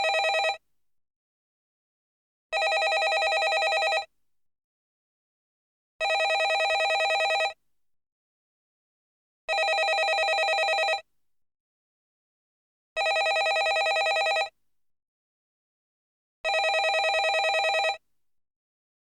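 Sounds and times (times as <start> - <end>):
telephone bell ringing: 0.0 - 0.6, 2.6 - 4.1, 6.0 - 7.6, 9.5 - 11.0, 13.0 - 14.5, 16.5 - 18.0.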